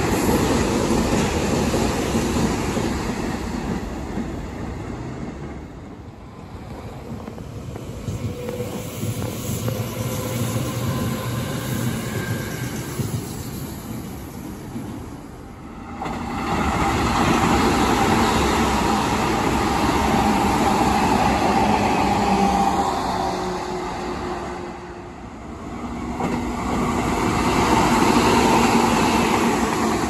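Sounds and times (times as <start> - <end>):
electric train passing: 0.0 - 30.0.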